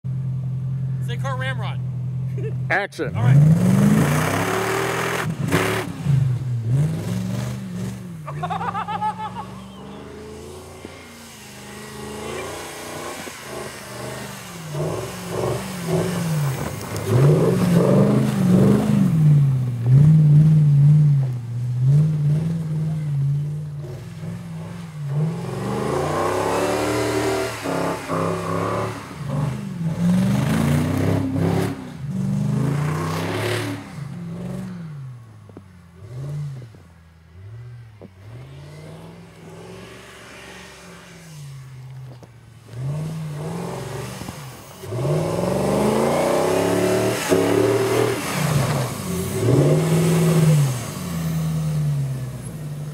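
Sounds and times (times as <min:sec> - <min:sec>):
car engine revving: 0:00.1 - 0:52.9
wheels spinning in snow: 0:08.4 - 0:18.3.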